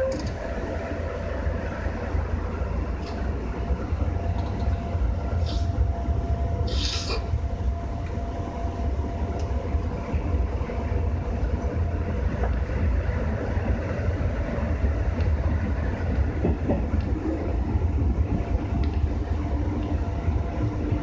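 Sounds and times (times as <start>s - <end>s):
faint clicks from rails: 0.0s - 0.5s, 2.9s - 3.4s, 4.0s - 5.8s, 9.2s - 10.2s, 11.4s - 21.0s
electric train running gear rumble: 0.0s - 21.0s.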